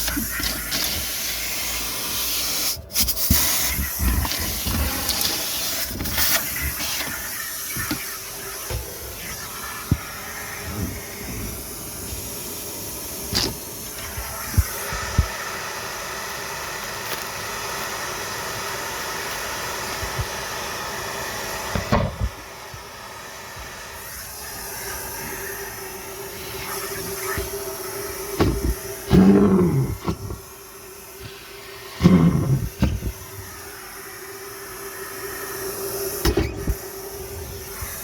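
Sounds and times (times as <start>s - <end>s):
vacuum cleaner air rush: 0.0s - 38.0s
trash knocking in hose: 26.7s - 30.5s, 32.0s - 33.6s.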